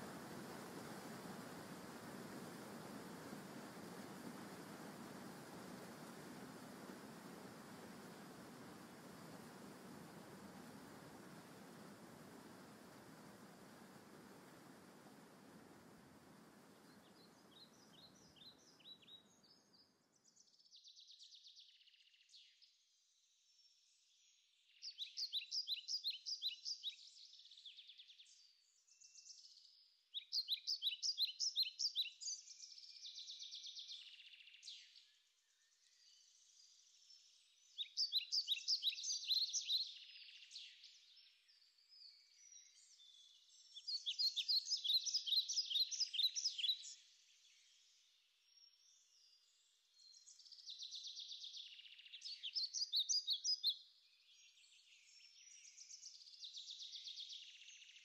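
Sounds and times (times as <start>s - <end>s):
soft bird twittering: 0.0s - 19.8s, 37.7s - 41.0s, 42.0s - 47.7s, 50.0s - 57.8s.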